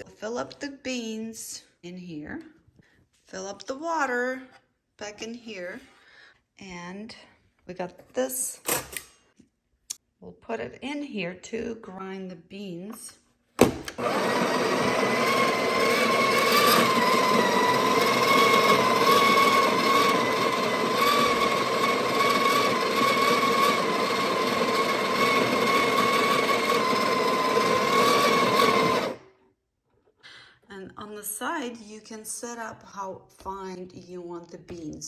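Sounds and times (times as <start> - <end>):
coffee grinder running: 13.8 - 29.2.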